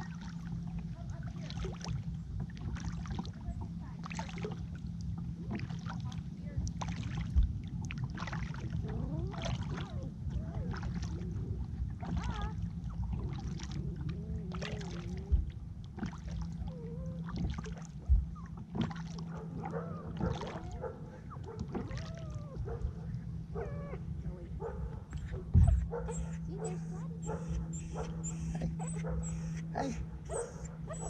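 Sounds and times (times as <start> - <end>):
kayak paddle strokes in water: 0.0 - 31.0
paddle knocking on hull: 14.5 - 23.1, 24.6 - 31.0
dog whining: 25.1 - 31.0.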